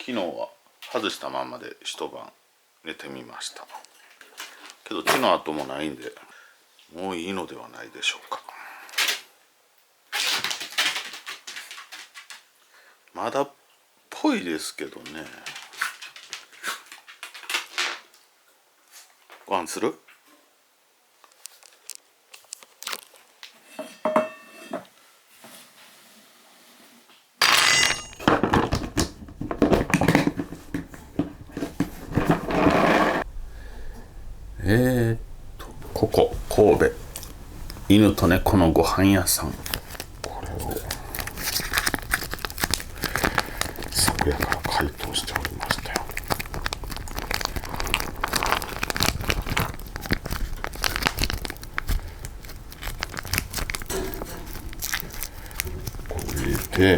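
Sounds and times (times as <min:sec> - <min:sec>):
plastic packaging crinkling: 0:10.2 - 0:12.4, 0:27.8 - 0:32.6, 0:36.0 - 0:56.9
bowls and containers clattering: 0:23.8 - 0:24.9, 0:27.4 - 0:33.2.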